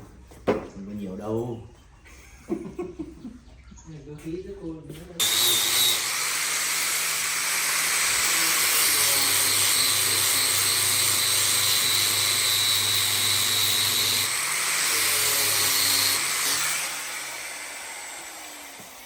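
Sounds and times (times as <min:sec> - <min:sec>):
power tool whining: 0:05.2 - 0:19.0.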